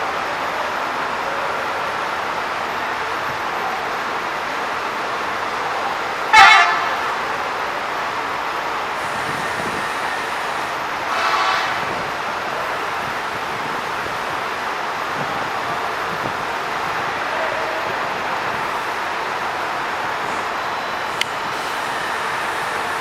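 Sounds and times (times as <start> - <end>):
steady traffic noise: 0.0 - 23.0
vehicle horn toots: 6.4 - 7.0, 9.0 - 13.6.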